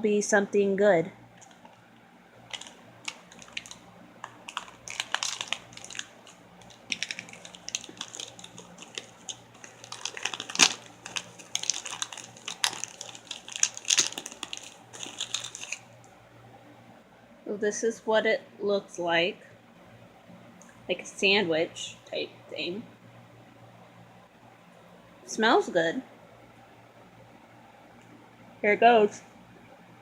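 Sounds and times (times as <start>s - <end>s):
plastic wrapper crinkling: 1.4s - 1.8s, 2.5s - 15.9s.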